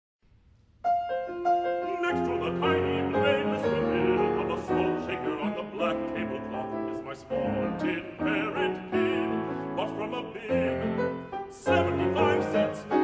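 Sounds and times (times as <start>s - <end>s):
piano playing: 0.8s - 13.0s.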